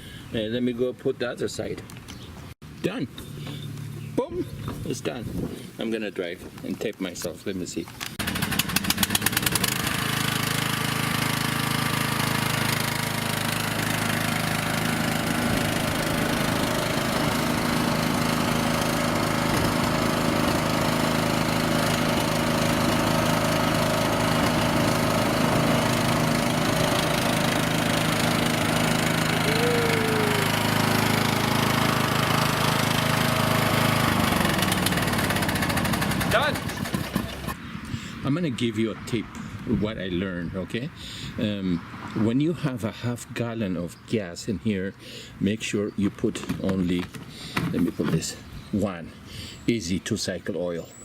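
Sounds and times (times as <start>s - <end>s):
riding lawnmower engine running: 8.0s - 37.7s.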